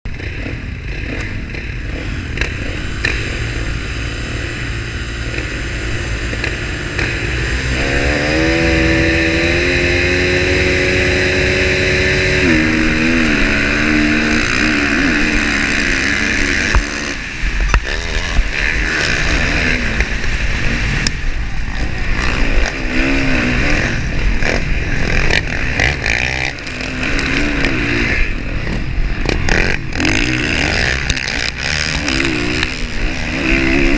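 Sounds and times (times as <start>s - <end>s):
motocross bike engines revving: 0.1s - 33.9s.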